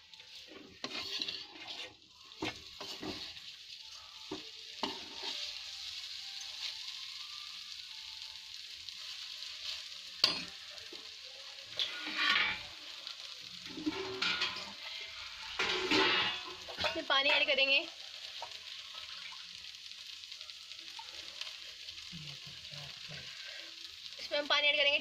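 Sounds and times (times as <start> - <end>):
spatula stirring and scraping: 0.0 - 6.9, 8.9 - 12.8, 13.6 - 16.9
food sizzling in oil: 0.0 - 25.0.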